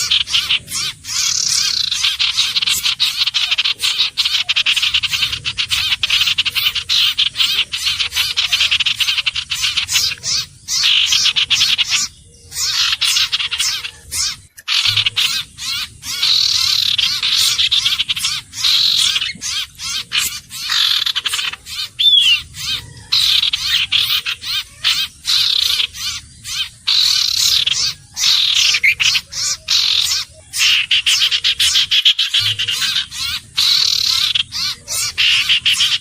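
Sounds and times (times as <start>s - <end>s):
bird chattering trills: 0.0s - 36.0s
down-slurred bird whistle: 20.7s - 24.1s.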